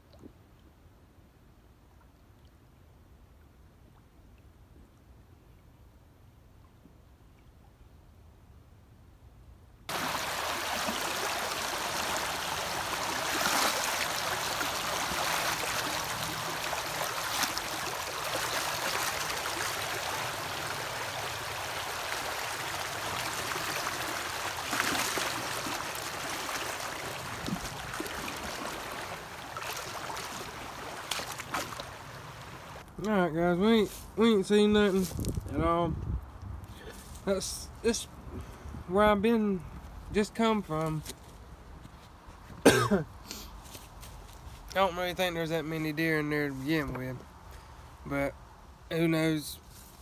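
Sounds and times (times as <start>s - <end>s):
stream rushing and gurgling: 9.9s - 32.8s.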